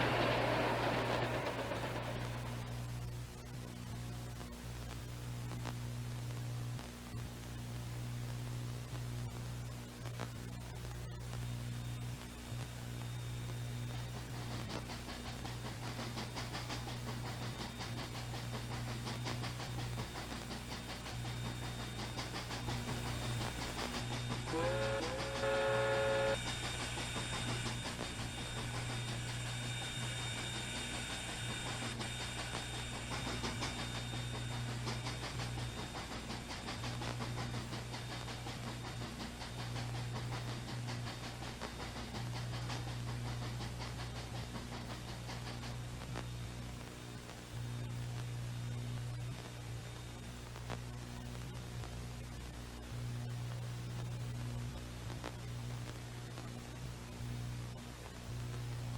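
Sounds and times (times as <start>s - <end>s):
steam locomotives rumbling: 0.0s - 3.3s, 14.0s - 45.6s
steam whistle: 24.0s - 31.4s.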